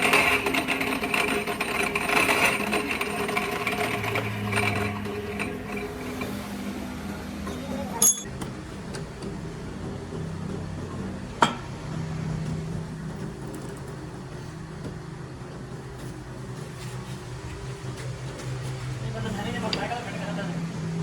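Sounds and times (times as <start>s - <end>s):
grinding scraping noise: 0.0s - 8.3s
workshop machinery hum: 0.0s - 21.0s.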